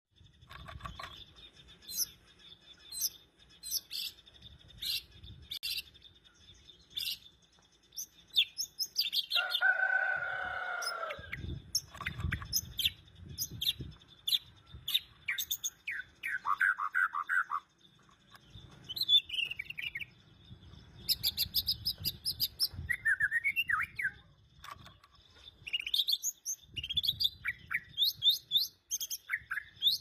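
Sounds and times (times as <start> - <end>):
bird chirps and whistles: 14.9 - 17.6, 21.1 - 24.2.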